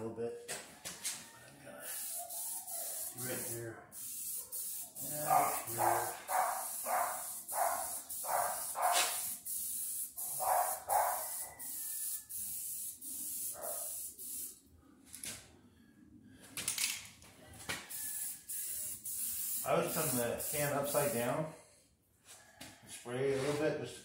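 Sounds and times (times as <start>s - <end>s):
aerosol can spraying: 1.8s - 14.6s, 17.8s - 21.3s.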